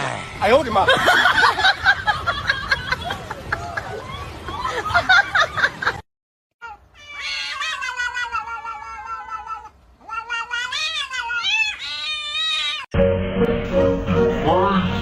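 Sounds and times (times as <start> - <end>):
cat yowling: 6.6 - 12.9.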